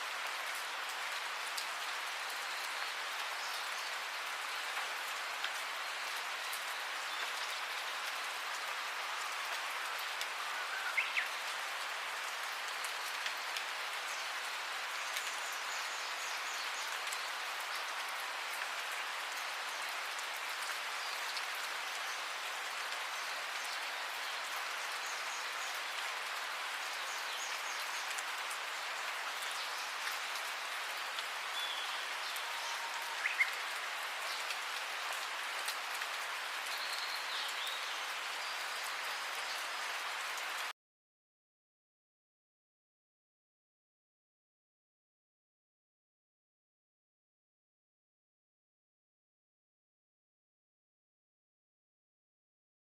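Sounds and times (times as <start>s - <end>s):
steady rain falling: 0.0s - 40.8s.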